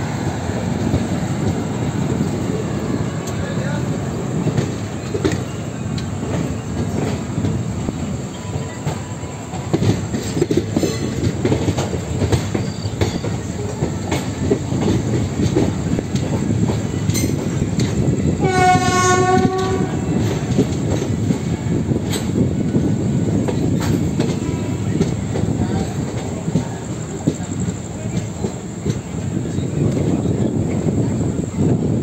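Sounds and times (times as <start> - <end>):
train wheels rumbling: 0.0 - 32.0
wheels clicking over rail joints: 0.2 - 31.7
train horn: 18.4 - 20.4.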